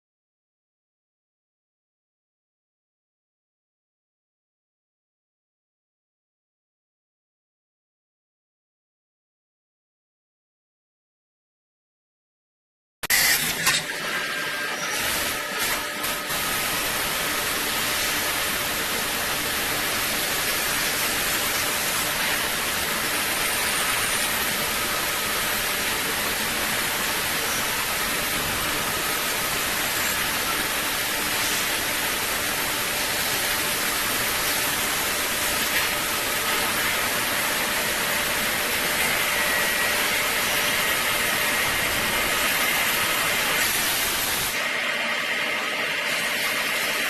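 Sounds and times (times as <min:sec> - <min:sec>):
machining hiss: 0:14.9 - 0:44.6.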